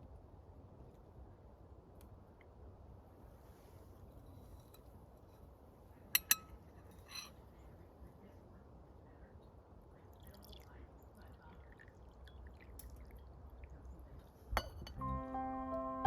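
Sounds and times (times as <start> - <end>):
liquid dripping and trickling: 10.1 - 15.0
soft piano music: 14.8 - 16.0.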